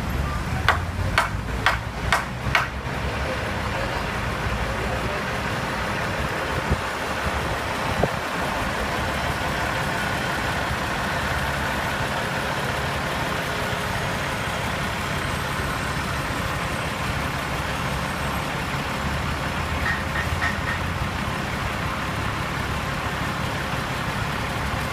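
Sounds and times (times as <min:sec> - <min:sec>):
truck engine idling: 0:00.0 - 0:24.9.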